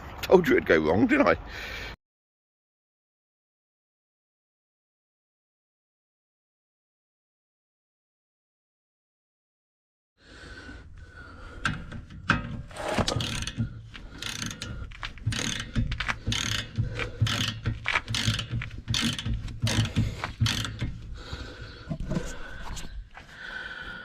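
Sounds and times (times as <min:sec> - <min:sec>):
socket ratchet clicking: 0:12.7 - 0:21.0.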